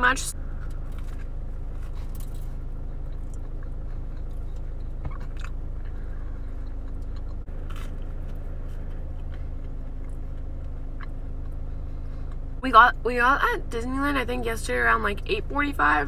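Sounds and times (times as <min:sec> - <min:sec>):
car cabin hum: 0:00.0 - 0:16.0
person chewing crunchy toast: 0:00.5 - 0:12.5.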